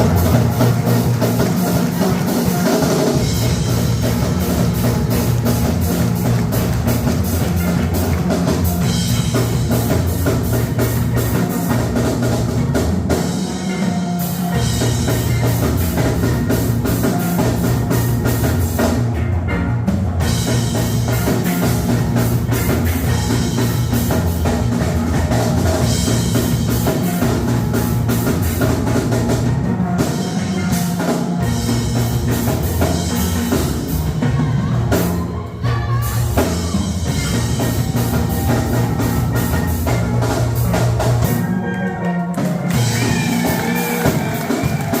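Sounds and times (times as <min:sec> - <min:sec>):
band playing upbeat music: 0:00.0 - 0:45.0.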